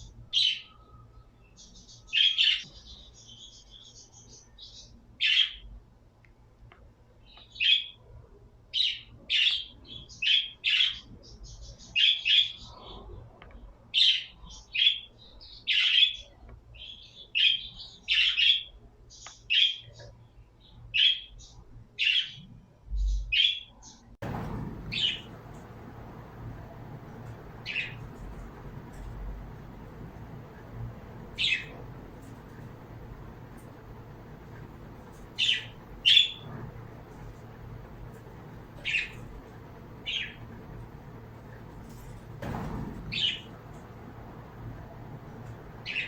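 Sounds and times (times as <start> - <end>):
birds chirping: 0.0 - 5.7, 23.2 - 46.0.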